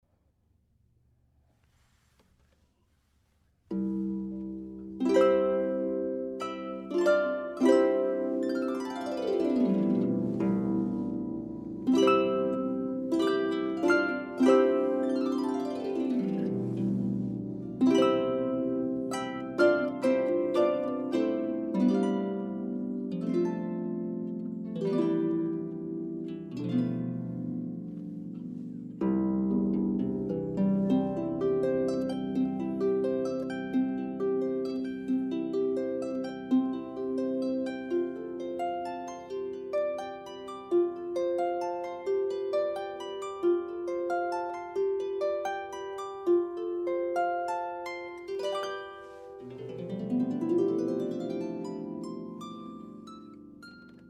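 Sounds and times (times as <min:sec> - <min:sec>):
solo harp playing: 0:03.7 - 0:54.0.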